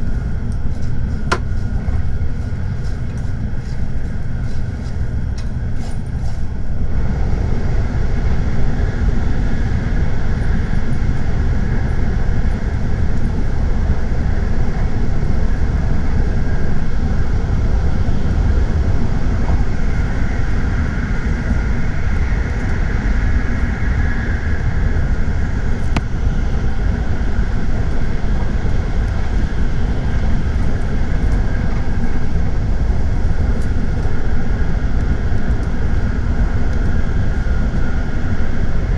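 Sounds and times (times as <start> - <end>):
train running at speed: 0.0 - 38.9.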